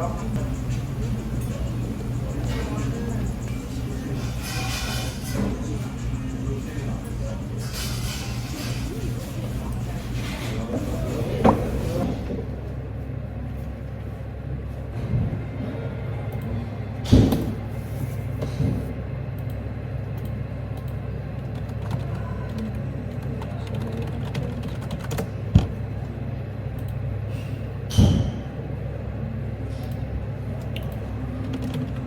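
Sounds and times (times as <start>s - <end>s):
steady low rumble: 0.0s - 13.1s.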